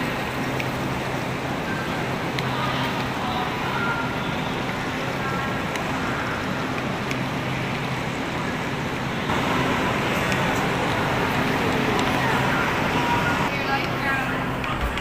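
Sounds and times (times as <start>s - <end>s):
train carriage hum: 0.0s - 15.0s.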